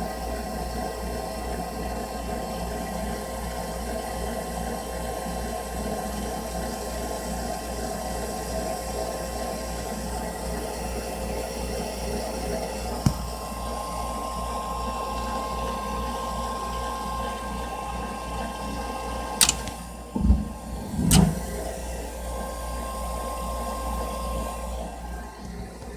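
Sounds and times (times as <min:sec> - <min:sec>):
furnace humming and hissing: 0:00.0 - 0:25.9
sharp click: 0:19.4 - 0:21.6
low thumps: 0:19.5 - 0:21.7.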